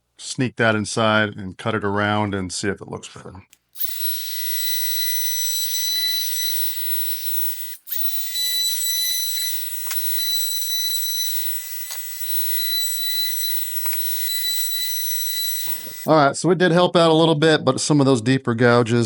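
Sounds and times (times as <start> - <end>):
router whining: 3.6 - 16.1.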